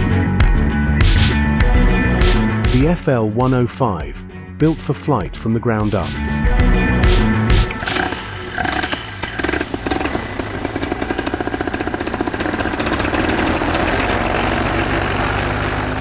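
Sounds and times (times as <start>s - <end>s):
paramotor engine starting and running: 6.2s - 16.0s.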